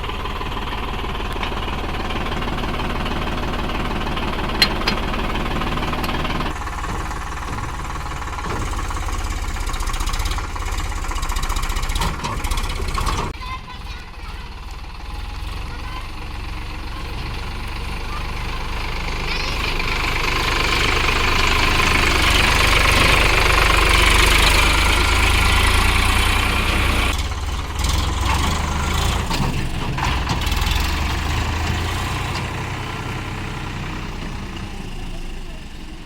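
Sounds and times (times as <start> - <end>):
diesel engine running: 0.0 - 36.0
clattering knocks: 1.2 - 13.4.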